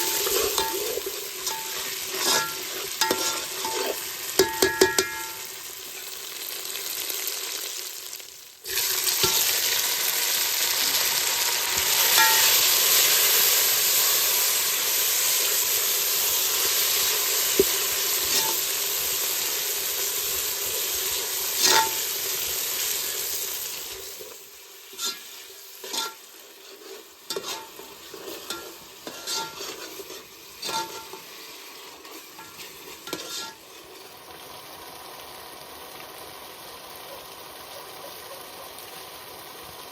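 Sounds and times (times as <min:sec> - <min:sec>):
spatula scraping a pan: 0:00.0 - 0:05.5, 0:08.7 - 0:09.6, 0:11.7 - 0:13.1, 0:18.2 - 0:18.8, 0:21.1 - 0:22.4, 0:23.3 - 0:34.0
food sizzling in hot oil: 0:00.0 - 0:39.9.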